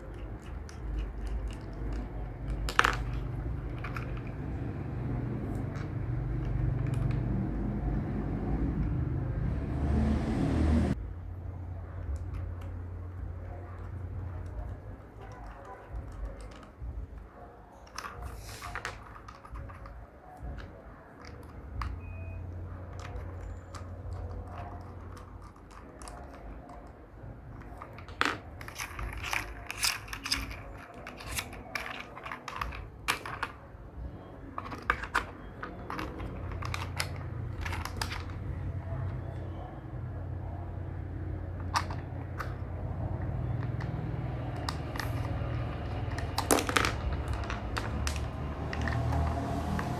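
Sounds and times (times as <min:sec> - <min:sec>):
plastic toy pieces clicking: 0:00.0 - 0:07.6, 0:22.9 - 0:33.6, 0:34.5 - 0:38.5, 0:41.5 - 0:49.2.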